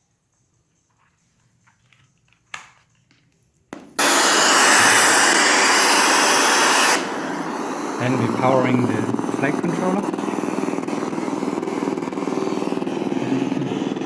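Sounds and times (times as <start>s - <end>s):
receiver static hiss: 4.0s - 14.0s.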